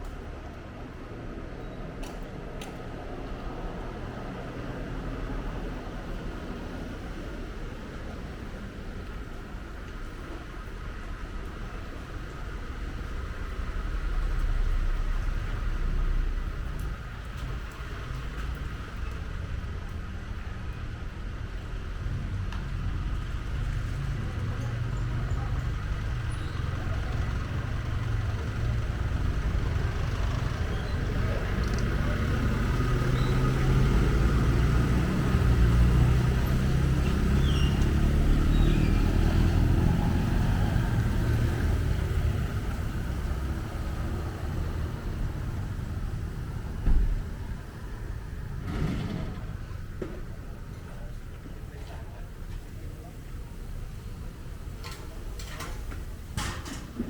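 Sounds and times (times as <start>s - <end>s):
vehicle passing with low rumble: 2.9s - 54.7s
short thump: 46.8s - 47.2s.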